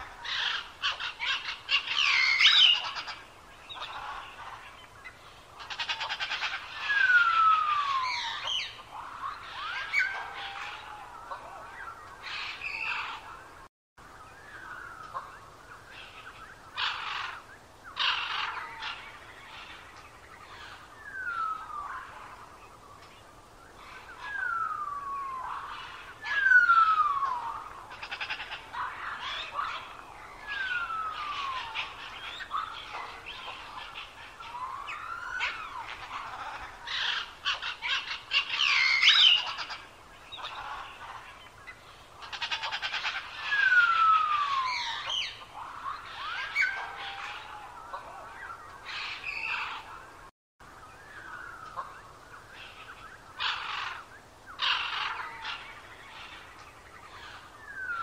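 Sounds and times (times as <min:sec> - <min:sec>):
birds chirping and trilling: 0:00.0 - 0:58.0
birds whistling: 0:00.0 - 0:58.0.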